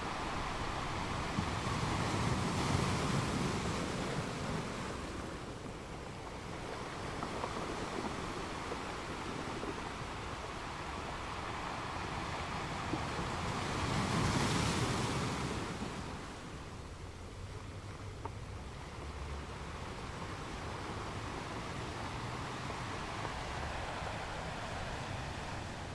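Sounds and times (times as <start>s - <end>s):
ocean waves washing on sand: 0.0s - 25.9s.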